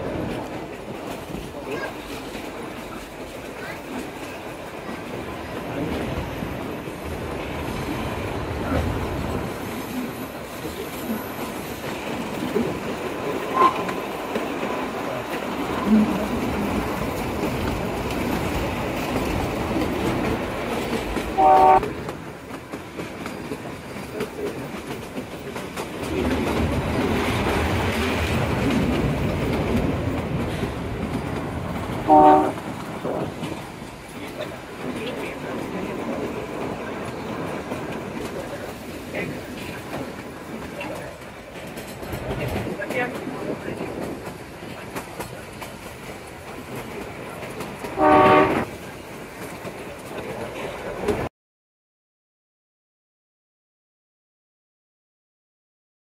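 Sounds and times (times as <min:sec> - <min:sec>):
train wheels clattering on rails: 0:00.0 - 0:51.3
train horn blasts: 0:21.4 - 0:21.9, 0:32.1 - 0:32.6, 0:48.0 - 0:48.7.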